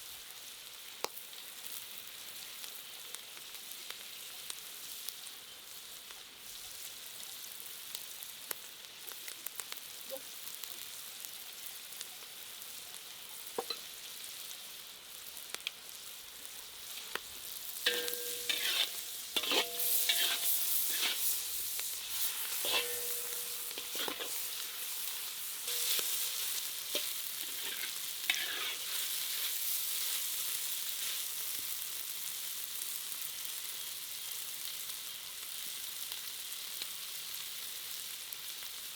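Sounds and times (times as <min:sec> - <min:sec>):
food sizzling in a pan: 0:00.0 - 0:38.9
utensil clanking on pan: 0:13.6 - 0:13.8, 0:17.9 - 0:24.8, 0:25.7 - 0:28.8
metal utensil scraping pan: 0:13.6 - 0:13.9, 0:17.8 - 0:30.2.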